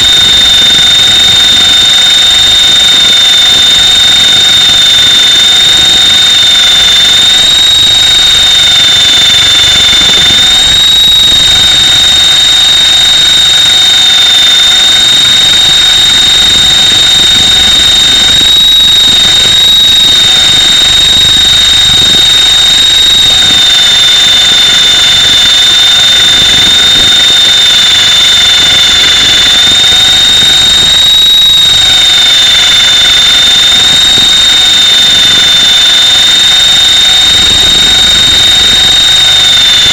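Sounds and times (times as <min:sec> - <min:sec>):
rc helicopter motor whining: 0:00.0 - 0:39.9.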